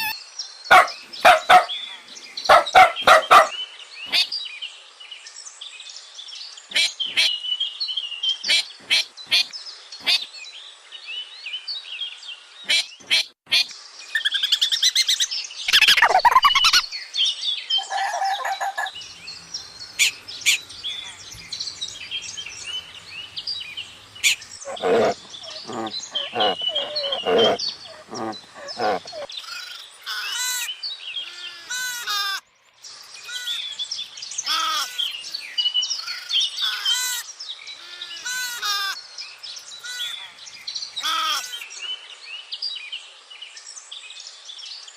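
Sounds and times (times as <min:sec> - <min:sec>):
birds chirping and calling: 0:00.0 - 0:04.4, 0:12.6 - 0:17.0, 0:17.7 - 0:32.4, 0:33.0 - 0:41.8.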